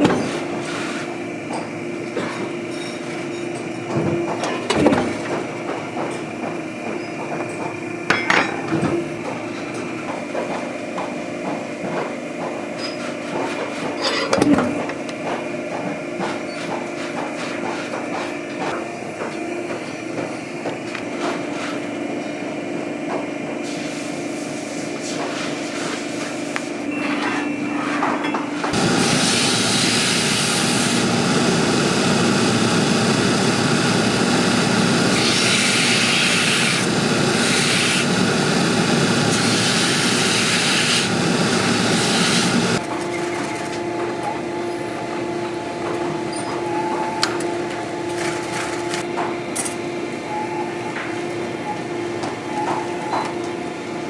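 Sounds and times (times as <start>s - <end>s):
grinding machine humming: 28.7s - 42.8s
loud grinding rubbing noise: 28.7s - 42.8s.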